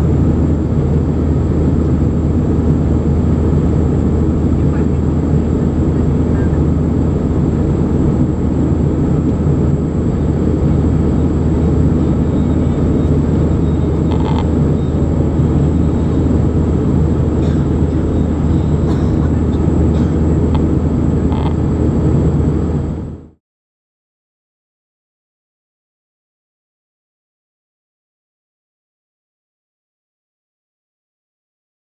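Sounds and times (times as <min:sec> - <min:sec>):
faint high whine: 0:00.0 - 0:23.4
jet engine cabin rumble: 0:00.0 - 0:23.4.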